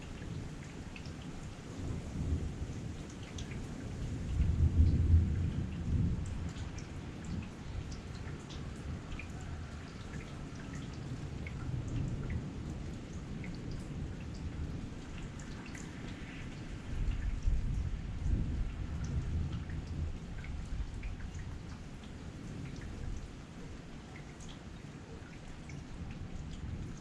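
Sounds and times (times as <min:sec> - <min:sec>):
heavy rain falling: 0:00.0 - 0:27.0
low rumble of thunder: 0:00.0 - 0:27.0
raindrops ticking close by: 0:00.0 - 0:27.0.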